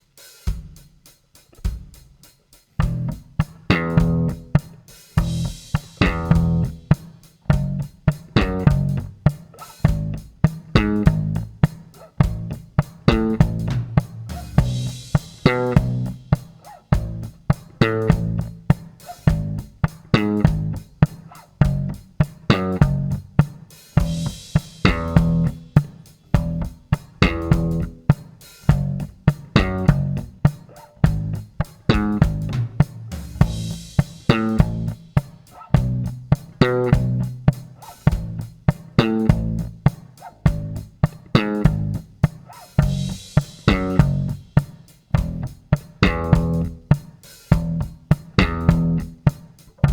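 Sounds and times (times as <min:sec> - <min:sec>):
drum backing: 0:00.0 - 0:49.9
electric bass plucked notes: 0:02.8 - 0:04.6, 0:05.2 - 0:06.8, 0:07.5 - 0:09.2, 0:09.8 - 0:11.6, 0:12.2 - 0:16.3, 0:16.9 - 0:18.6, 0:19.3 - 0:20.9, 0:21.6 - 0:23.4, 0:24.0 - 0:25.6, 0:26.4 - 0:28.0, 0:28.7 - 0:30.4, 0:31.0 - 0:32.7, 0:33.3 - 0:35.0, 0:35.8 - 0:37.4, 0:38.1 - 0:39.8, 0:40.5 - 0:42.1, 0:42.8 - 0:44.5, 0:45.2 - 0:46.9, 0:47.5 - 0:49.9.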